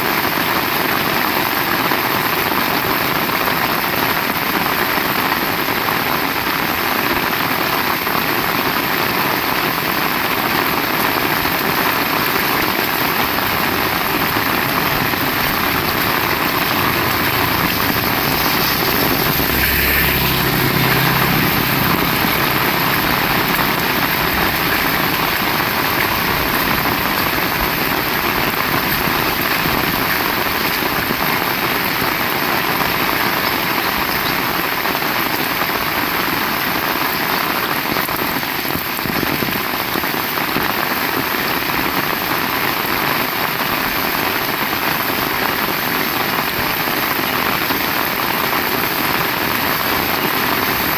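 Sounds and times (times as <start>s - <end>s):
heavy rain falling: 0.0s - 50.9s
vehicle engine passing: 12.5s - 30.6s.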